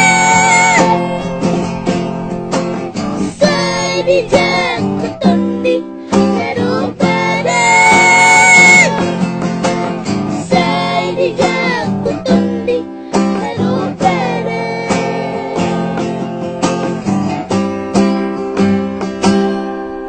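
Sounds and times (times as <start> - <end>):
child singing: 0.0 - 1.7, 3.2 - 9.3, 10.4 - 16.2
strummed acoustic guitar: 0.0 - 20.0.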